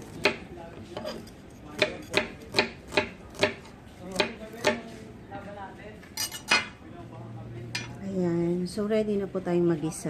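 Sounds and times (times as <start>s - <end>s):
knife chopping on cutting board: 0.0s - 0.4s, 1.8s - 4.9s.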